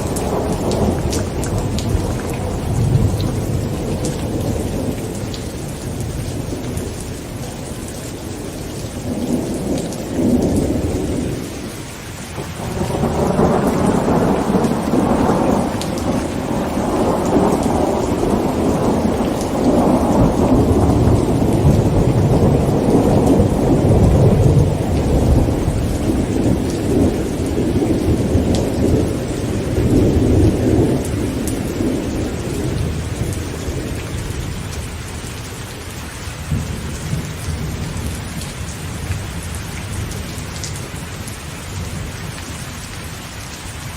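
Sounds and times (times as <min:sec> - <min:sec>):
rolling thunder: 0:00.0 - 0:11.8, 0:12.4 - 0:35.2
heavy rain on a tent: 0:00.0 - 0:43.9.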